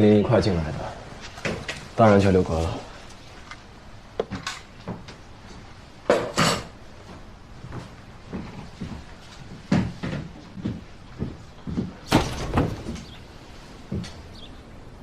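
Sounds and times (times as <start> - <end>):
knocks of things being handled: 4.2 - 5.2, 7.7 - 13.2.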